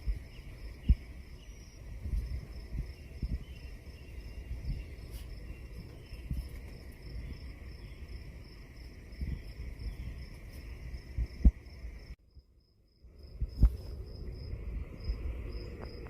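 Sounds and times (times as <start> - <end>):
crickets chirping: 0.0 - 16.0
insect drone: 0.0 - 16.0
low rumble: 13.0 - 16.0.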